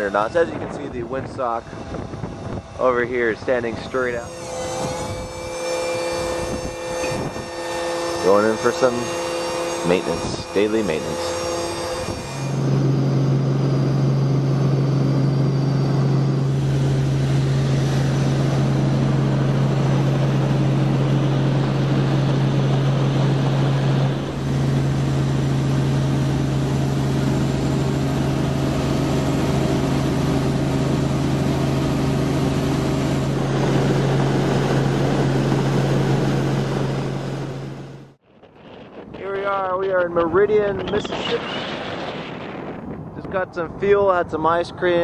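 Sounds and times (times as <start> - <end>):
helicopter engine and rotors: 0.0 - 5.3, 8.2 - 45.0.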